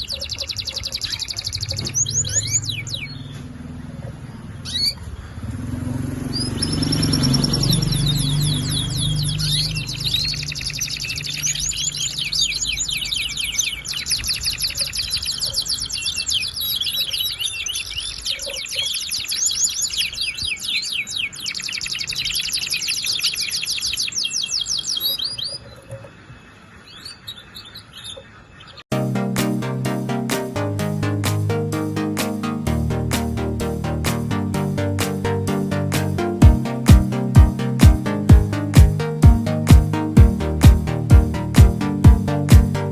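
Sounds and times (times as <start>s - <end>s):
canary singing trills: 0.0s - 28.8s.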